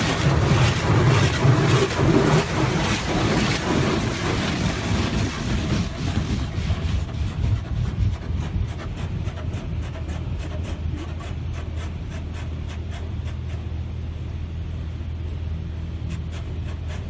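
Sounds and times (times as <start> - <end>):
water spray hitting car: 0.0 - 7.2
low hum of wash machinery: 0.0 - 17.0.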